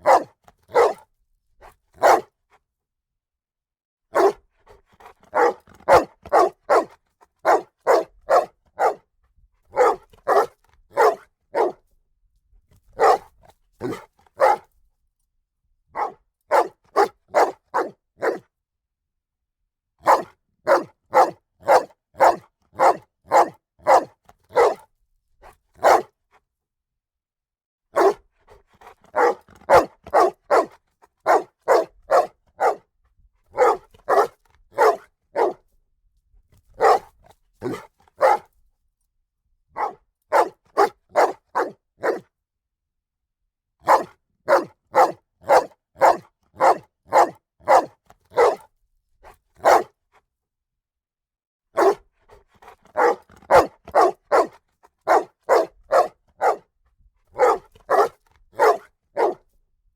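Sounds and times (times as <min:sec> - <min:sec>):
dog barking: 0:00.0 - 0:01.1, 0:02.0 - 0:02.4, 0:04.1 - 0:09.1, 0:09.7 - 0:11.8, 0:12.9 - 0:14.7, 0:15.9 - 0:18.4, 0:20.0 - 0:24.9, 0:25.8 - 0:26.2, 0:27.9 - 0:32.9, 0:33.5 - 0:35.6, 0:36.7 - 0:38.5, 0:39.8 - 0:42.3, 0:43.8 - 0:50.0, 0:51.8 - 0:56.7, 0:57.4 - 0:59.5.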